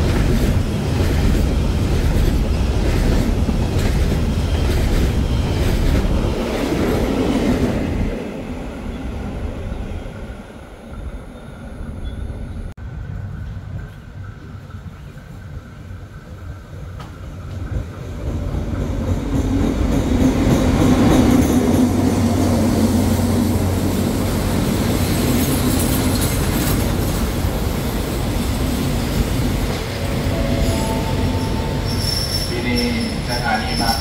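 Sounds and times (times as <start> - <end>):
train wheels clattering on rails: 0.0 - 8.0, 13.0 - 22.6, 23.2 - 32.2
diesel locomotive engine: 0.0 - 34.0
wheels squealing: 30.3 - 34.0.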